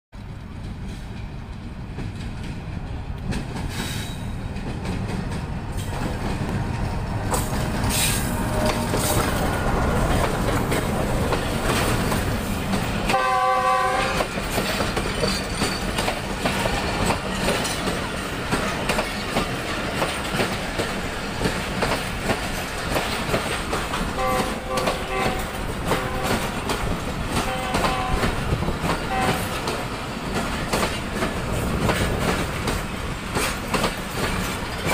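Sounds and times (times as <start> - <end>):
train running past: 0.2 - 34.9
coaches clattering over rail joints: 0.4 - 13.2, 14.1 - 34.9
locomotive horn: 7.7 - 9.9, 13.0 - 14.3, 24.1 - 26.6, 27.3 - 28.5, 29.1 - 29.6.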